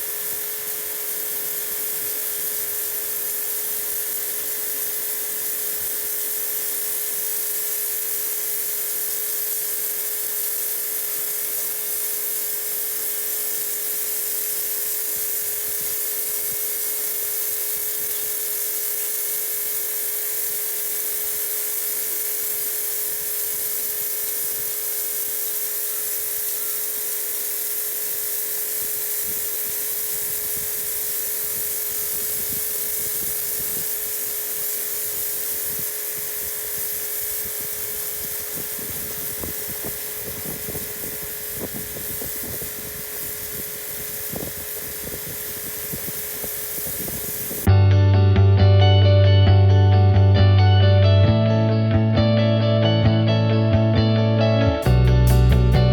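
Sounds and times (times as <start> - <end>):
high-pressure water jet hissing: 0.0 - 47.7
pressure washer motor whine: 0.0 - 47.8.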